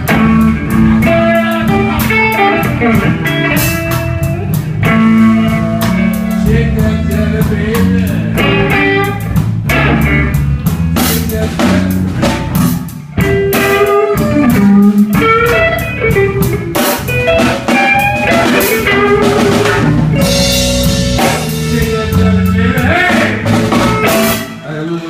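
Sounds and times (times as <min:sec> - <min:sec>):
bass guitar: 0:00.0 - 0:25.0
drum kit: 0:00.0 - 0:25.0
lead guitar bending notes: 0:00.0 - 0:25.0.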